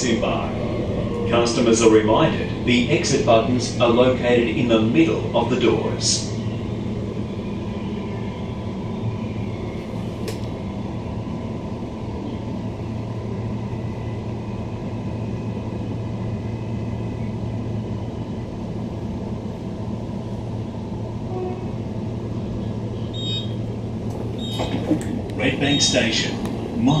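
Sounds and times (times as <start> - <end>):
electric train interior rumble: 0.0 - 27.0
faint whine: 24.3 - 27.0.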